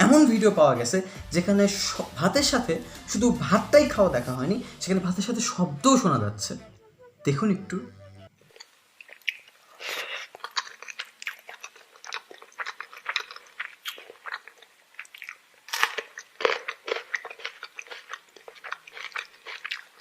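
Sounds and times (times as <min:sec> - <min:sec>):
person chewing crunchy food: 0:08.4 - 0:20.0.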